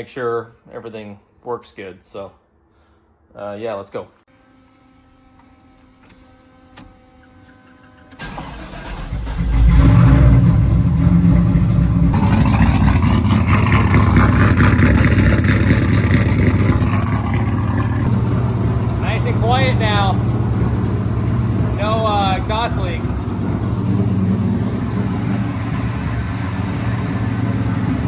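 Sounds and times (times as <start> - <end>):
engine cranking and starting: 6.1 - 28.0
engine idling: 7.2 - 28.0.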